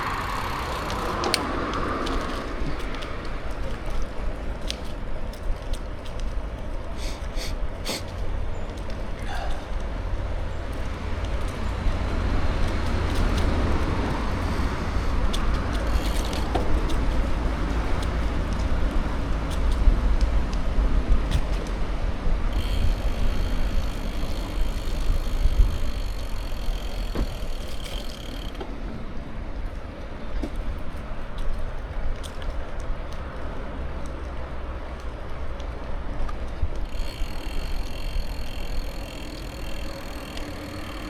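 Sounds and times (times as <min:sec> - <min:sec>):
steady high whine: 0:00.0 - 0:01.6
small clicks: 0:00.0 - 0:06.8, 0:32.2 - 0:41.0
bicycle tyres rolling on road: 0:00.0 - 0:41.0
wind rumbling on microphone: 0:00.0 - 0:41.0.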